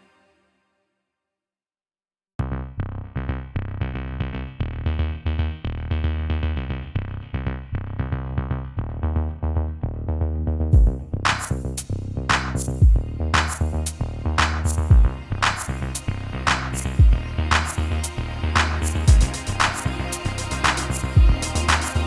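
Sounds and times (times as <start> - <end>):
electronic music with drum-machine beat: 12.5 - 22.0.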